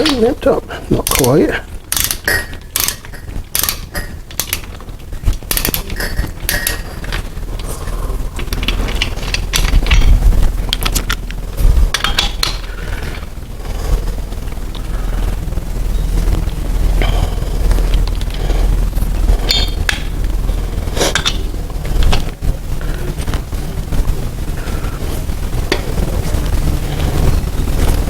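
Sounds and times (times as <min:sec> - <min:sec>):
low rumble: 0:01.6 - 0:28.0
metal clicks of hand tools: 0:01.9 - 0:04.7.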